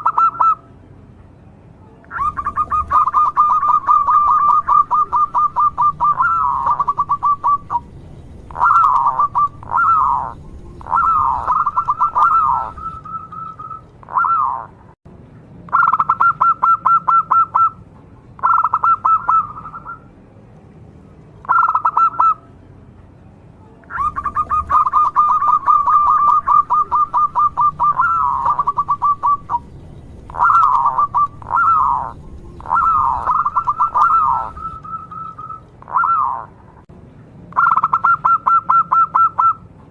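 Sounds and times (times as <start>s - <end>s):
dove cooing: 2.1s - 14.7s, 18.4s - 20.0s, 21.4s - 22.4s, 23.9s - 36.5s.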